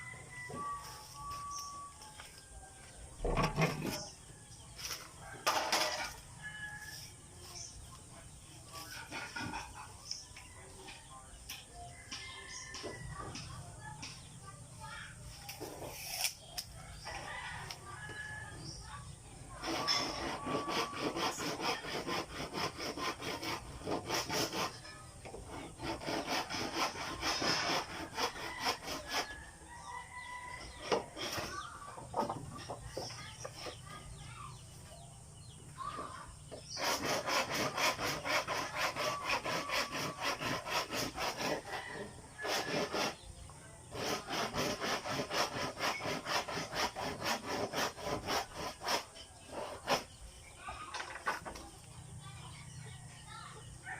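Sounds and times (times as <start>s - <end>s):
handsaw cutting wood: 3.3s - 4.1s, 8.7s - 10.0s, 19.5s - 29.4s, 30.6s - 32.4s, 36.5s - 43.3s, 43.9s - 50.2s.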